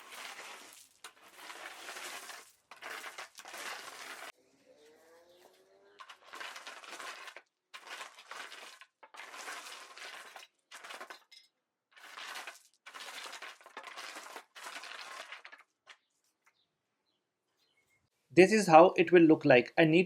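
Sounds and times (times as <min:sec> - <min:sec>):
wooden board scraping gravel base: 0:00.0 - 0:04.4, 0:05.2 - 0:11.3, 0:12.0 - 0:16.1.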